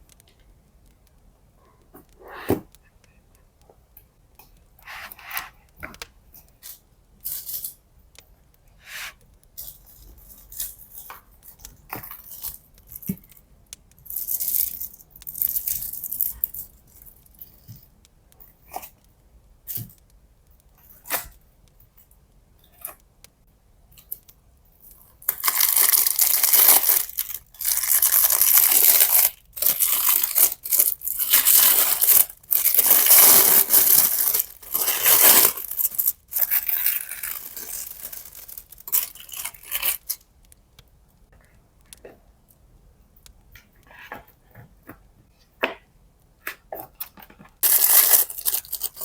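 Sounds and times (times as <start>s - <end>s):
light crinkles and taps: 0.0s - 49.0s
loud tearing: 25.3s - 40.1s, 47.6s - 49.0s.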